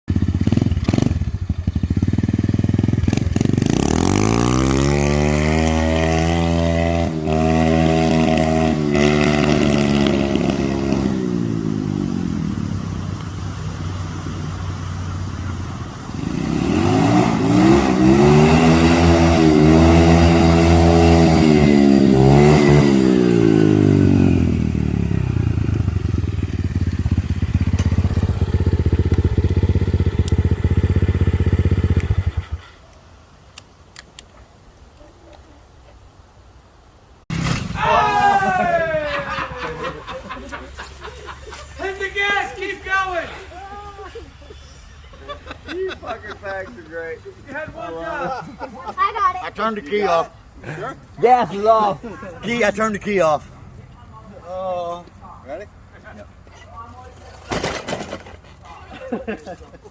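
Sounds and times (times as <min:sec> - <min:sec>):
dirt bike engine revving: 0:00.1 - 0:32.7.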